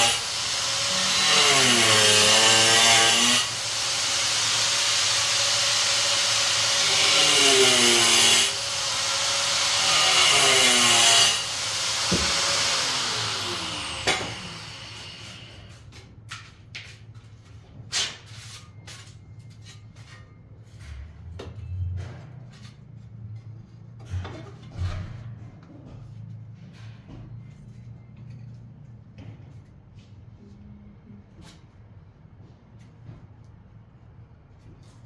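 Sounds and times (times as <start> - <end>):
power tool motor running: 0.0 - 15.7.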